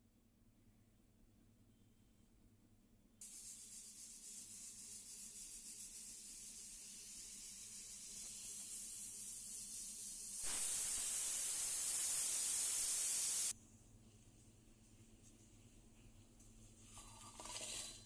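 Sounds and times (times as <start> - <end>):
loud hiss: 3.2 - 13.5
steady hiss: 3.2 - 13.6.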